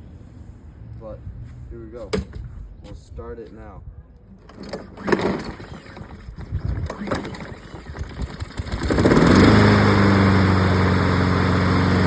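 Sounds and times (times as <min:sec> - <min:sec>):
lawn mower pull cord cranking: 0:04.4 - 0:12.0
lawn mower engine running: 0:04.5 - 0:12.0.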